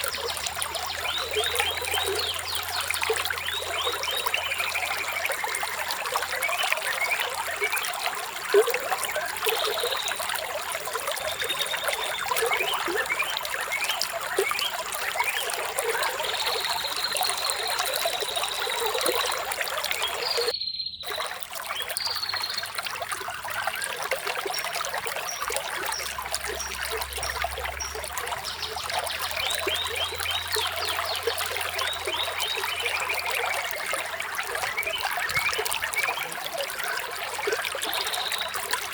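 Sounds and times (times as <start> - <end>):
water trickling: 0.0 - 38.9
short chirping calls: 13.7 - 22.6.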